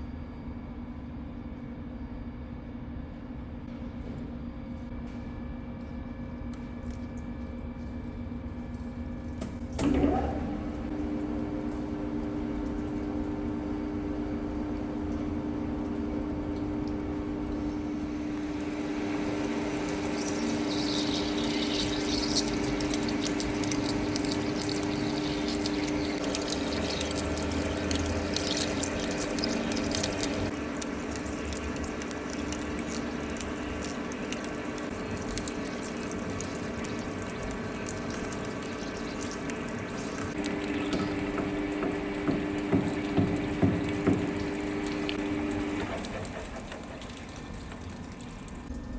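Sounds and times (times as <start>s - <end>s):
lathe spindle hum: 9.8s - 34.9s.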